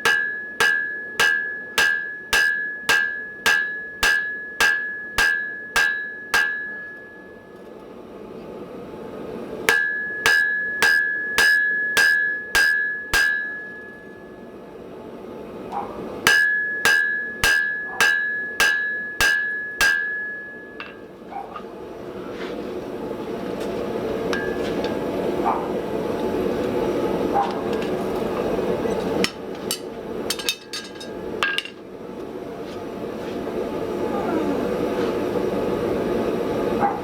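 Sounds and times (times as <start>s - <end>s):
hammer striking steel on anvil: 0.0s - 7.8s, 9.7s - 14.4s, 16.2s - 21.2s, 24.3s - 25.1s, 28.9s - 31.8s.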